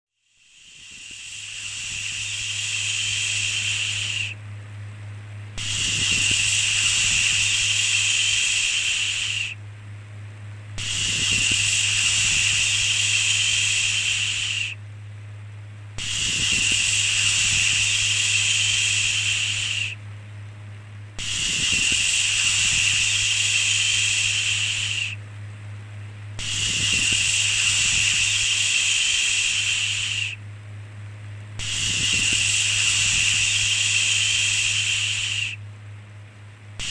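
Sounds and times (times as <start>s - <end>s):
steady low hum: 0.2s - 36.9s
person shushing: 0.6s - 4.4s, 5.6s - 9.6s, 10.8s - 14.8s.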